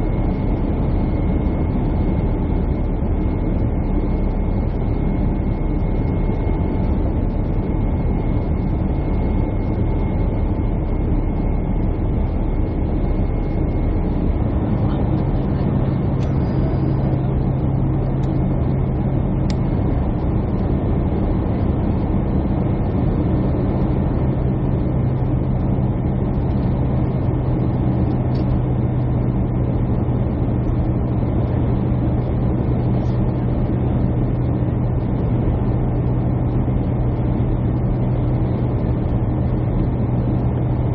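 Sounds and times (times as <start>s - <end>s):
airliner cabin hum: 0.0s - 40.9s
deeper hum: 0.0s - 40.9s.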